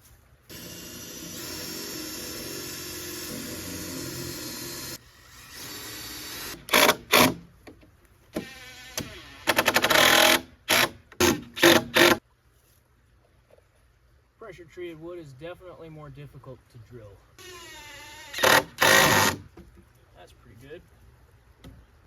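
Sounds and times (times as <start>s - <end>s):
drill rattling hammer: 0.5s - 7.4s, 8.4s - 12.2s, 17.4s - 19.4s
power drill boring into wood: 0.5s - 7.4s, 8.4s - 12.2s, 17.4s - 19.4s.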